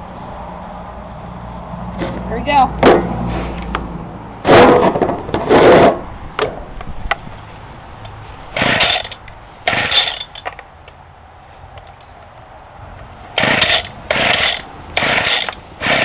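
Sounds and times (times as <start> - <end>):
starter rope pulled rasping: 8.6 - 10.5, 13.4 - 16.0.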